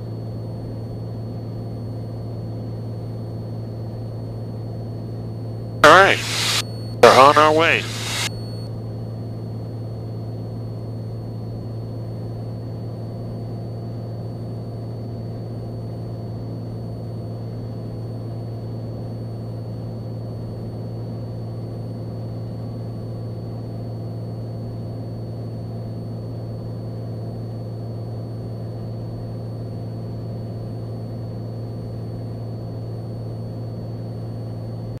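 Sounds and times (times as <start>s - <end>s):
thin high whine: 5.8s - 8.3s.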